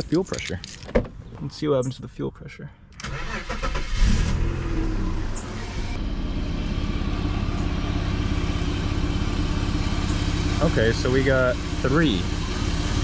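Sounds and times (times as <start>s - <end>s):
car engine idling: 3.2s - 13.0s.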